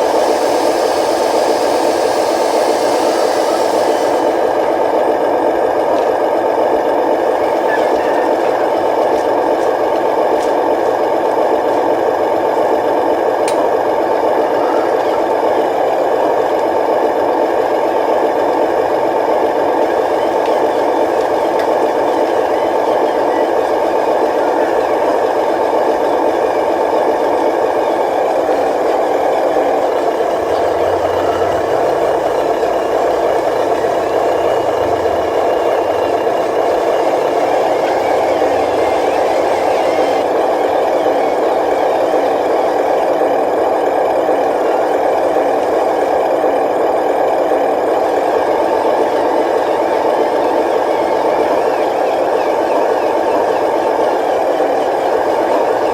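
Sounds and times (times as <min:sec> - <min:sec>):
model machinery whirring and rattling: 0:00.0 - 0:07.2, 0:16.5 - 0:44.6.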